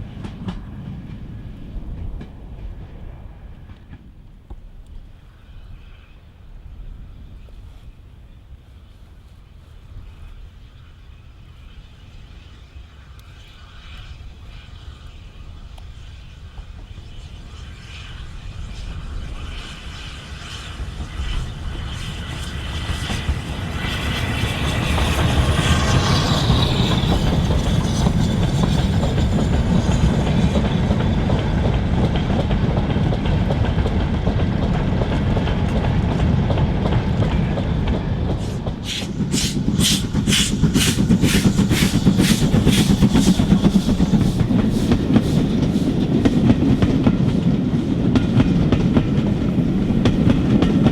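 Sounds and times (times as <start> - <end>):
steam train running past: 0.0 - 50.9
regular chugging beat: 38.8 - 46.4.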